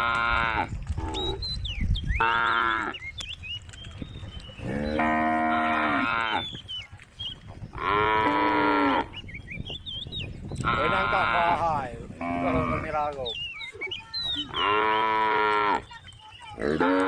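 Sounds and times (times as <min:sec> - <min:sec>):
cow mooing: 0:04.7 - 0:06.4, 0:07.8 - 0:09.1, 0:10.6 - 0:11.6, 0:12.2 - 0:12.9, 0:14.5 - 0:15.9.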